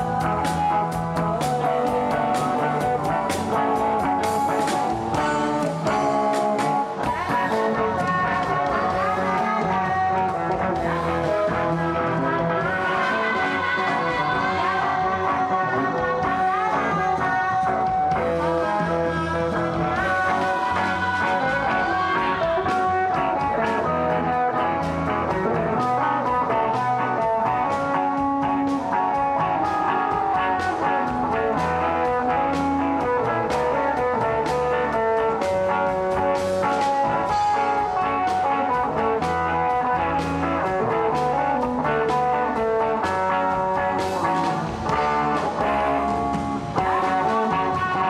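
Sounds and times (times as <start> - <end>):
pop-rock band playing: 0.0 - 48.0.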